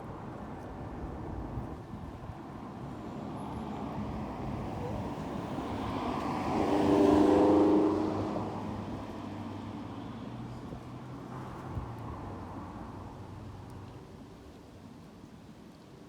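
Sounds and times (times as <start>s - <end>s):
road and wind rumble: 0.1s - 14.0s
car passing by: 4.3s - 9.7s.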